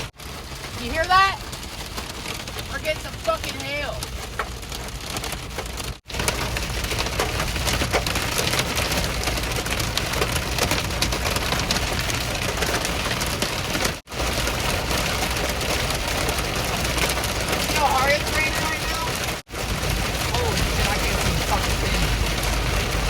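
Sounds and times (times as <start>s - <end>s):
hail and rain on car: 0.0s - 23.0s
low road rumble: 0.0s - 23.0s.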